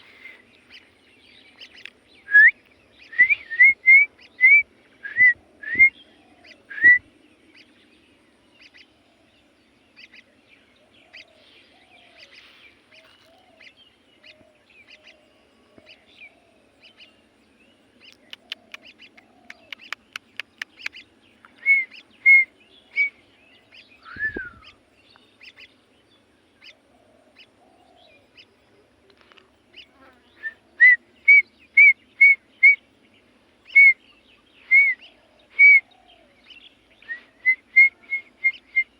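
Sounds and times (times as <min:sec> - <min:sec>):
pet bird chirping: 0:18.0 - 0:25.8, 0:34.6 - 0:38.9
falling whistle: 0:24.1 - 0:24.6.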